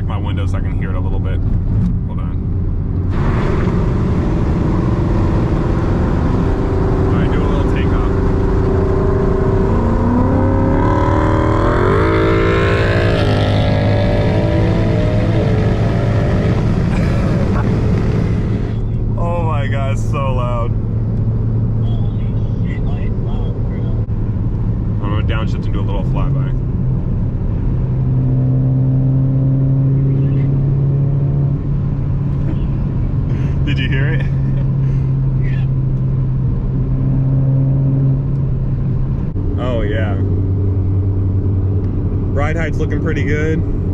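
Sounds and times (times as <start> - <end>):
car exhaust accelerating hard: 0.0 - 43.9
cabin drone: 3.0 - 20.1.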